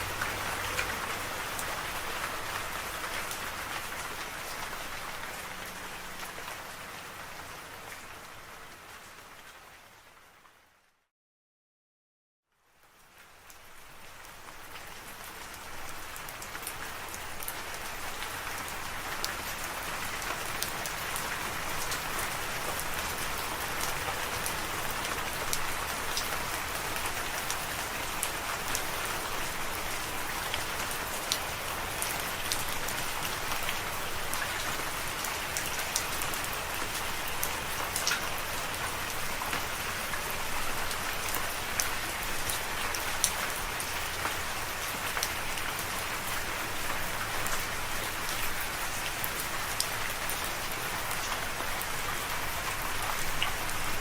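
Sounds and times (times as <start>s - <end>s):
steady rain falling: 0.0s - 11.0s, 12.5s - 54.0s.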